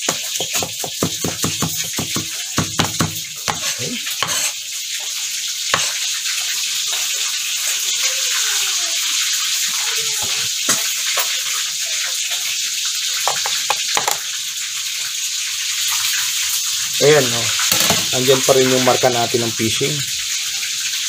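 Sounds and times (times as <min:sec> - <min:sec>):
knife tapping cutting board: 0:00.0 - 0:04.4, 0:13.3 - 0:14.2, 0:17.7 - 0:18.1
food frying in hot oil: 0:00.0 - 0:21.0.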